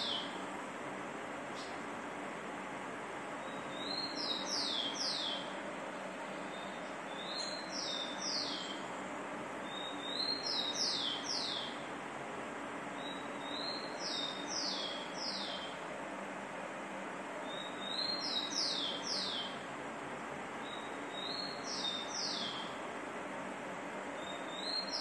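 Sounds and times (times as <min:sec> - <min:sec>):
songbird whistling call: 0:00.0 - 0:00.4, 0:03.4 - 0:05.5, 0:06.5 - 0:08.8, 0:09.6 - 0:11.8, 0:13.0 - 0:15.7, 0:17.4 - 0:19.6, 0:20.6 - 0:22.7, 0:24.2 - 0:25.0.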